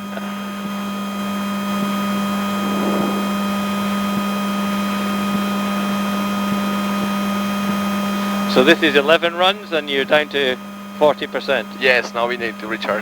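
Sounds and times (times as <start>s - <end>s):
electric car hum: 2.3s - 3.7s.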